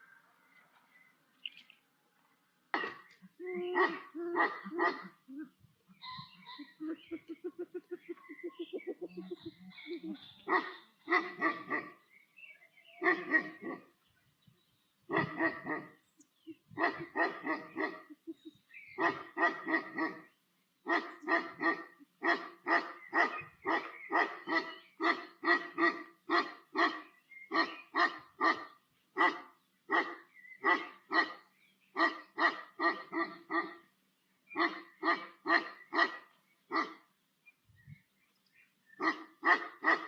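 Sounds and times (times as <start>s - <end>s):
dog barking: 2.7s - 5.2s, 10.4s - 12.0s, 13.0s - 13.9s, 15.1s - 16.0s, 16.8s - 18.2s, 19.0s - 20.3s, 20.9s - 31.4s, 32.0s - 33.8s, 34.6s - 37.0s, 39.0s - 40.0s.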